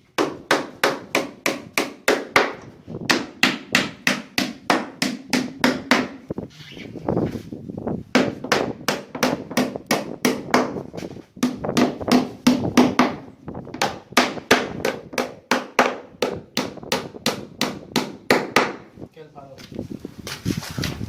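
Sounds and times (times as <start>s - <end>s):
hammering on wood: 0.2s - 6.2s, 8.1s - 10.8s, 11.4s - 18.8s.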